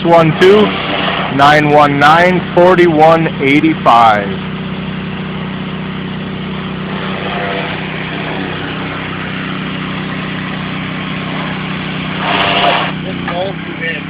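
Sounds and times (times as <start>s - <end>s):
pressure washer engine running: 0.0s - 14.0s
water spray hissing: 0.6s - 1.4s, 6.8s - 13.0s.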